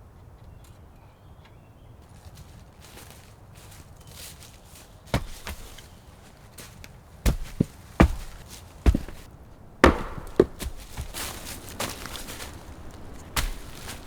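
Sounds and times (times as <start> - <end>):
sharp knocks: 7.3 - 11.3.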